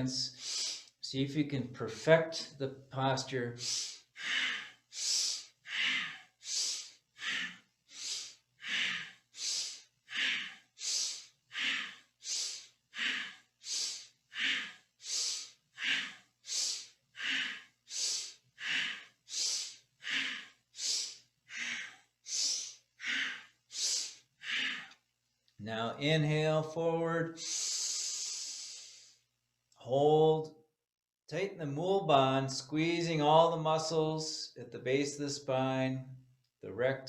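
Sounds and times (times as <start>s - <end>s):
rhythmic breathing through the nose: 0.0s - 1.0s, 3.6s - 25.1s, 27.4s - 29.3s.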